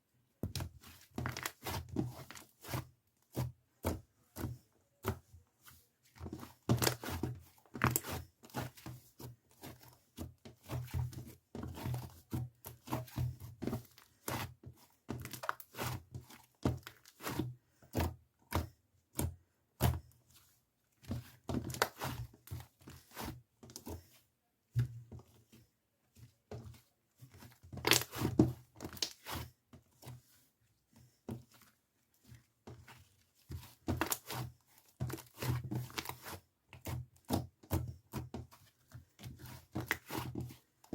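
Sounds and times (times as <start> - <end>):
crinkling and tearing: 27.8 - 28.3.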